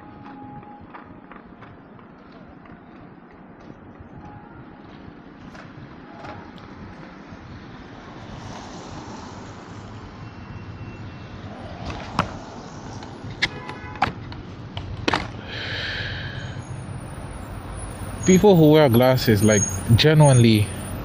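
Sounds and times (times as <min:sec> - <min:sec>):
wind and road noise: 0:00.0 - 0:21.0
scooter knocks and rattles: 0:13.4 - 0:15.4.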